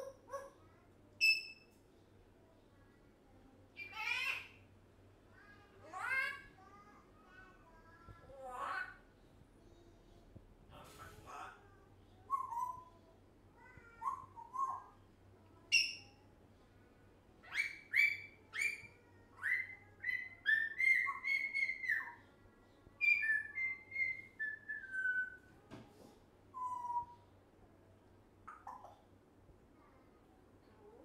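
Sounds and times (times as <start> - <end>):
parrot whistling and chirping: 1.2 - 1.6, 14.0 - 14.9, 15.7 - 16.2, 17.4 - 22.2, 23.0 - 25.5, 26.5 - 27.2.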